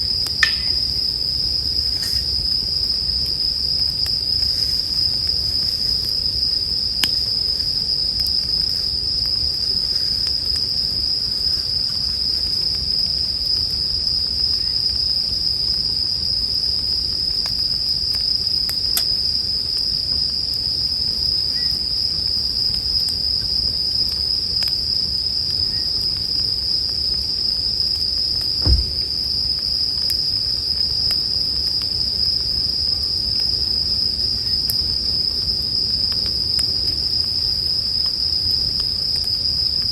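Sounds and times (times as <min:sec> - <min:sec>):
campfire rumble and crackles: 0:00.0 - 0:39.9
crickets trilling: 0:00.0 - 0:39.9.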